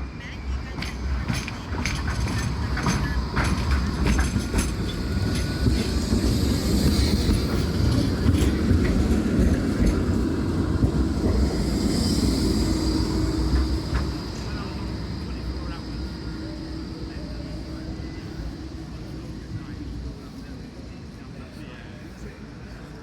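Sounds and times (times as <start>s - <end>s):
tram rumbling: 0.0s - 23.0s
wheels clicking over rail joints: 0.8s - 11.4s.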